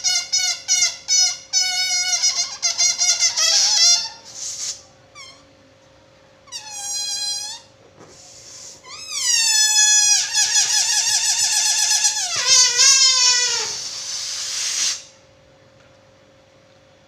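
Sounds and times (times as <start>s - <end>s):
rubber balloon squealing: 0.0s - 5.5s, 6.5s - 7.7s, 8.5s - 15.1s.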